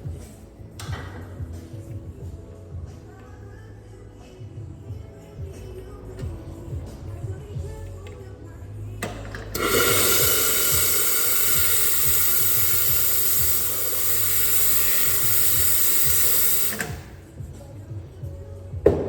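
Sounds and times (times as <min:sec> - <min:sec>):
background music: 0:00.0 - 0:19.0
water running from a tap: 0:09.6 - 0:16.8.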